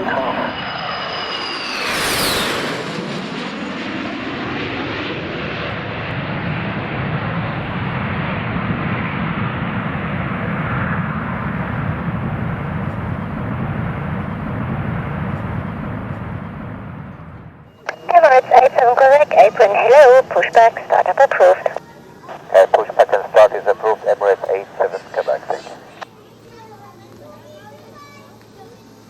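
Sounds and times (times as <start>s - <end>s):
jet engines whining: 0.0s - 17.1s, 17.8s - 26.0s.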